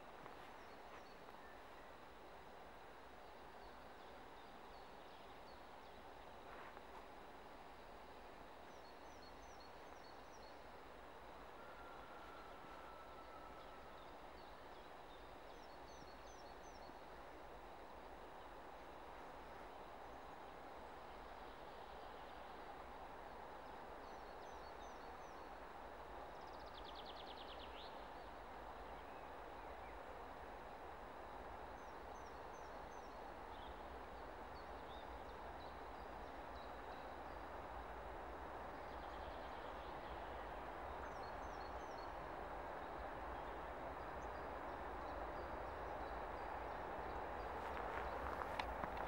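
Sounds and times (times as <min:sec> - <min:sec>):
distant freight train rumble: 0:35.1 - 0:49.0
small birds chirping: 0:44.2 - 0:49.0.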